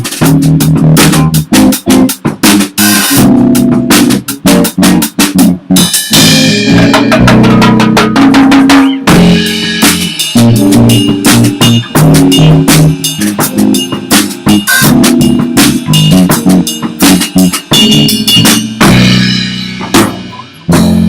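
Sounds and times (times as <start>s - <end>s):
rapid kick and snare hits: 0.0s - 19.0s
rock band playing loudly: 0.0s - 21.0s.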